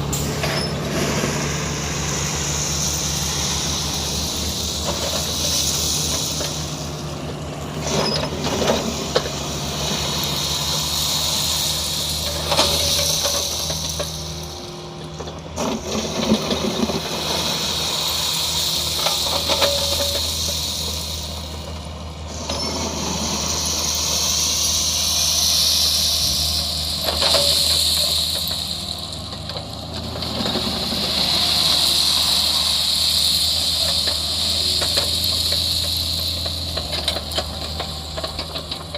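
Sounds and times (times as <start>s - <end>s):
high hiss: 0.0s - 8.1s, 8.8s - 14.9s, 16.8s - 38.6s
excavator diesel engine running: 0.0s - 38.9s.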